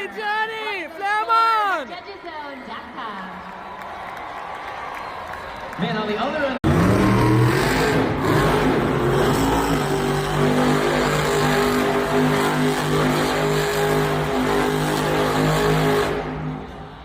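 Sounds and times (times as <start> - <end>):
truck engine at high revs: 6.6 - 16.9.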